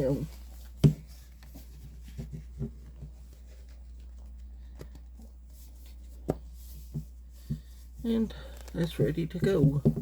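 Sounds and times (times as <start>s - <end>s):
fabric rustling and soft taps: 0.0s - 8.0s.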